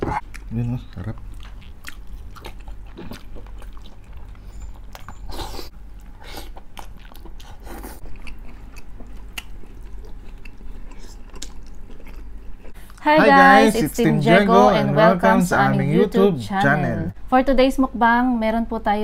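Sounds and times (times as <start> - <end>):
crunchy chewing: 0.2 - 13.0.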